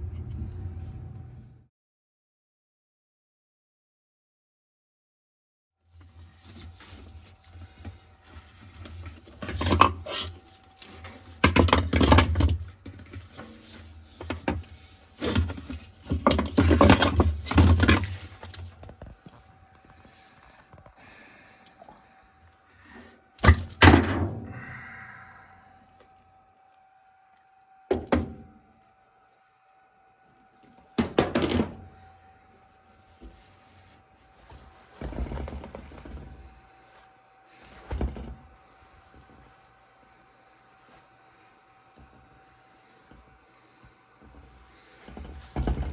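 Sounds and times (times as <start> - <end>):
washing machine thunks and rattling: 23.4 - 24.5, 27.9 - 28.4, 31.0 - 31.9, 45.2 - 45.9.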